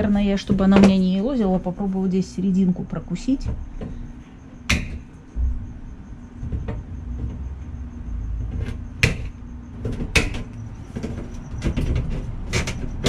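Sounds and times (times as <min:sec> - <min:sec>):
wire mesh rustling and knocking: 0:03.4 - 0:07.6, 0:08.3 - 0:13.0.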